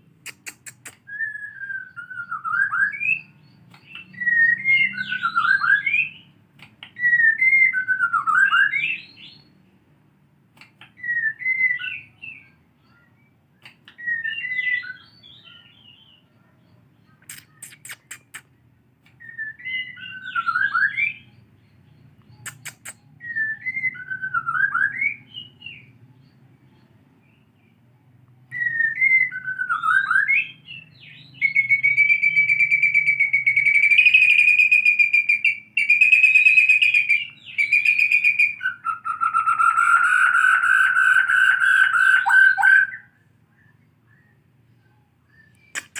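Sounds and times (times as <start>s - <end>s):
sharp clicks: 0.2s - 1.1s, 6.5s - 7.0s, 10.5s - 11.0s, 13.6s - 14.0s, 17.3s - 19.2s, 22.2s - 23.0s, 45.5s - 45.9s
bird singing whistled phrases: 0.2s - 6.3s, 7.0s - 9.5s, 11.0s - 16.2s, 19.2s - 25.9s, 28.5s - 45.9s
bird trilling: 17.2s - 18.6s, 19.2s - 25.9s, 28.5s - 43.1s, 45.4s - 45.9s.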